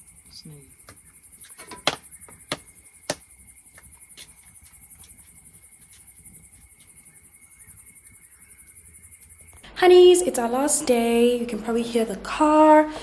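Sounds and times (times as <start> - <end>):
insects chirring: 0.0 - 9.7.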